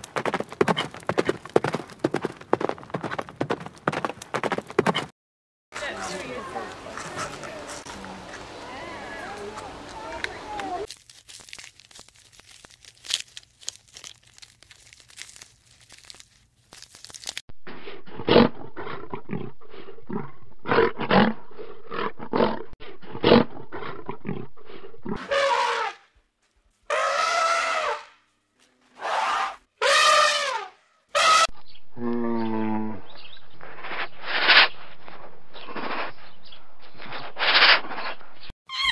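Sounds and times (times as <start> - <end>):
clicks and crunching: 10.8 - 17.4
big cat roaring and growling: 18.0 - 25.2, 32.0 - 33.1.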